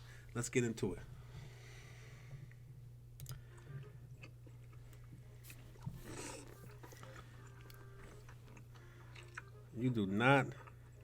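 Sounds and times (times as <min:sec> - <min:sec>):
steady low hum: 0:00.0 - 0:11.0
chewing: 0:03.8 - 0:09.7, 0:10.4 - 0:11.0.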